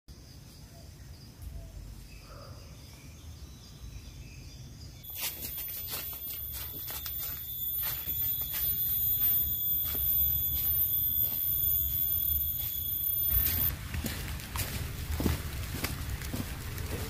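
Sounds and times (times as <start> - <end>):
faint high chirring: 5.0 - 13.7
high-pitched whine: 5.0 - 13.7
wind buffeting microphone: 13.7 - 17.0.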